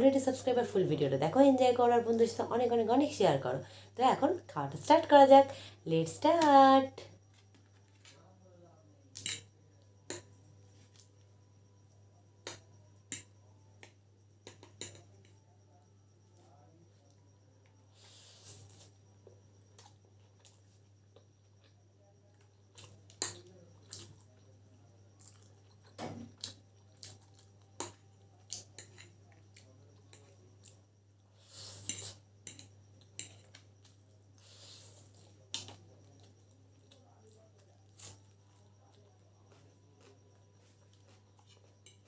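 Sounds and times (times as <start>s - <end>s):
faint steady hum: 0.0s - 42.0s
cutlery clinking on a plate: 14.4s - 15.1s, 28.7s - 29.2s.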